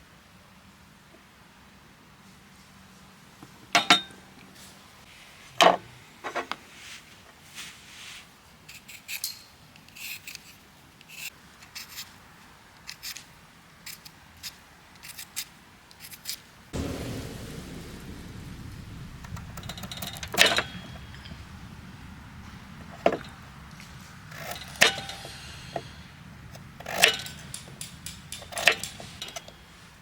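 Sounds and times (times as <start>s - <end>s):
loud knocks: 16.8s - 23.3s
steady hiss: 16.8s - 30.0s.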